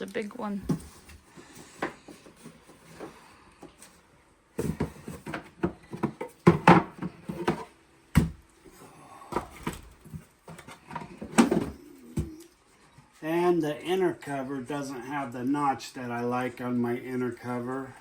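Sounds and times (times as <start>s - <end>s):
wooden knocks and clatters: 4.6s - 8.4s.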